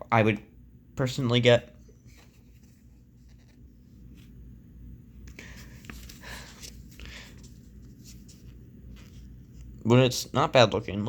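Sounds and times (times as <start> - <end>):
low steady hum: 0.0 - 11.0
paper pages rustling: 2.0 - 4.4, 5.4 - 9.8
soft paper scrapes: 2.0 - 4.4, 5.4 - 9.8.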